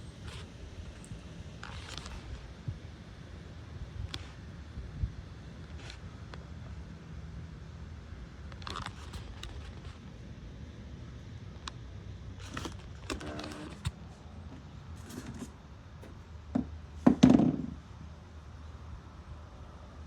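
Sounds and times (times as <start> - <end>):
sharp knocks and thuds: 16.0 - 17.8.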